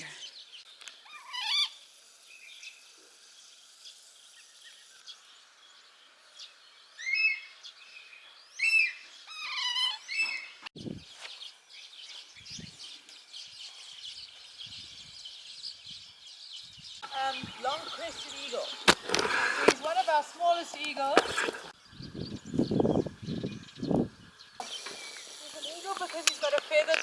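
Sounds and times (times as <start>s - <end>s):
insects humming: 0.0s - 8.0s, 16.7s - 27.0s
bird chirping: 0.0s - 27.0s.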